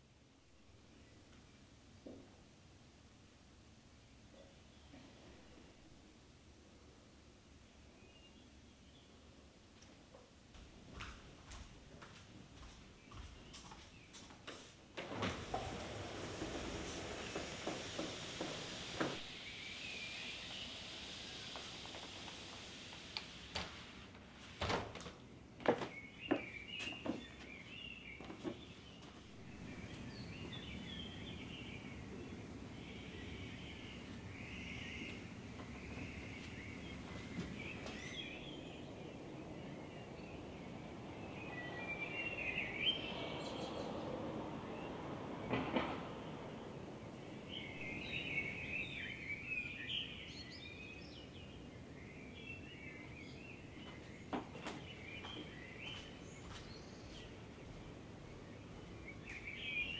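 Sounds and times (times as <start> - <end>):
low background noise: 0.0 - 59.9
birds chirping and singing: 25.9 - 45.0, 47.4 - 59.9.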